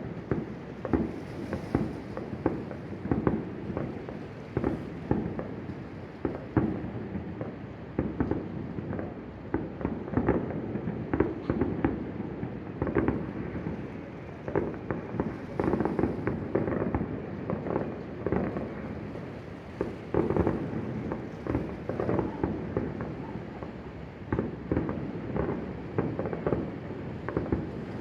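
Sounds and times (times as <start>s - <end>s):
fireworks bangs and booms: 0.0s - 28.0s.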